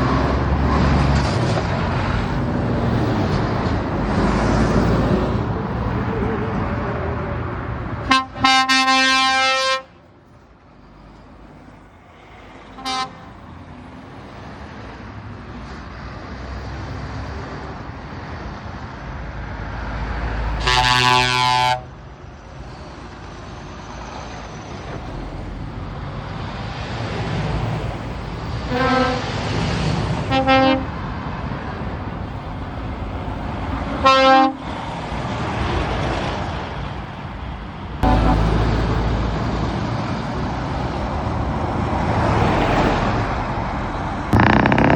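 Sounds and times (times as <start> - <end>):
truck engines passing: 0.0 - 44.9
truck air horns: 8.0 - 10.0, 12.7 - 13.4, 20.6 - 21.9, 28.7 - 29.4, 30.3 - 31.0, 34.0 - 34.7, 38.0 - 38.6, 44.4 - 44.9.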